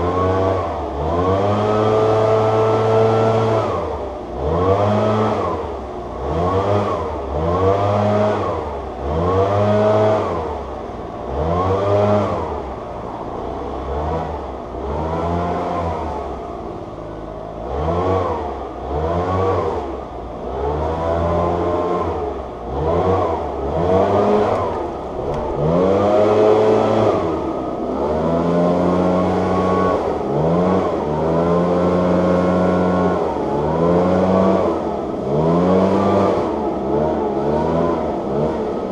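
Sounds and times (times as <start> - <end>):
small engine revving: 0.0 - 38.9.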